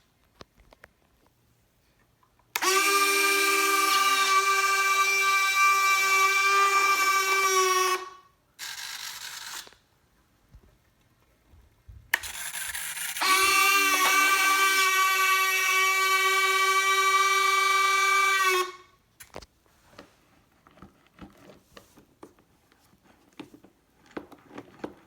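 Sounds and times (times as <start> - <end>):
motor starting click: 2.6 - 3.1
electric motor high whine: 2.6 - 8.0, 12.2 - 18.7.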